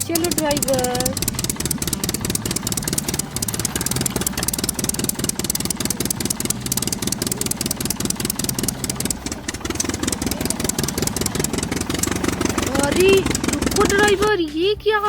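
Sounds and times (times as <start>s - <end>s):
toy vehicle rattling engine: 0.0s - 14.6s.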